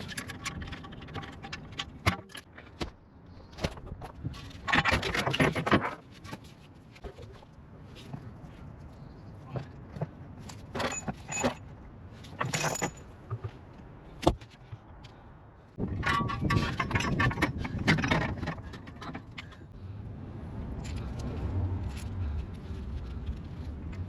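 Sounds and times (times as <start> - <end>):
metal tools clinking: 10.5 - 11.7, 12.3 - 13.2.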